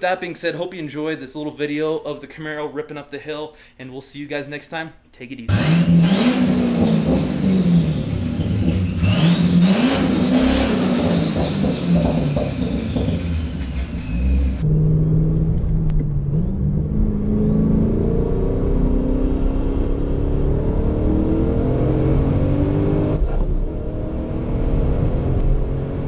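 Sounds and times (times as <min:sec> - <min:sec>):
car engine accelerating: 0:05.5 - 0:26.0.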